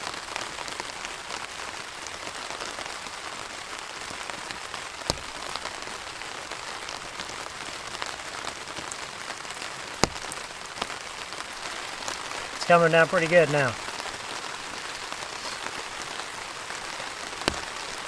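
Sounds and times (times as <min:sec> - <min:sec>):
heavy rain on a tarp: 0:00.0 - 0:18.0
single raindrops ticking: 0:03.7 - 0:18.0.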